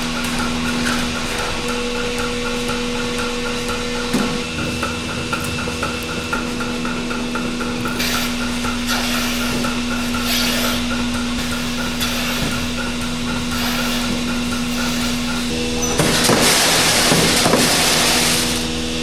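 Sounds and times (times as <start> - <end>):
regular ticking: 0.0 - 12.0
machine hum: 0.0 - 19.0.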